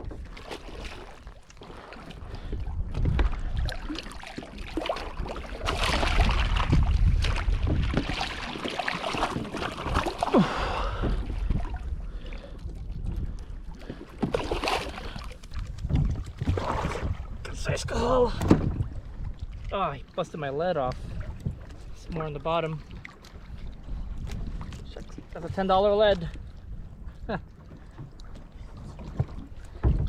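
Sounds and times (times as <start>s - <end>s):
water splashing against kayak: 0.0s - 30.0s.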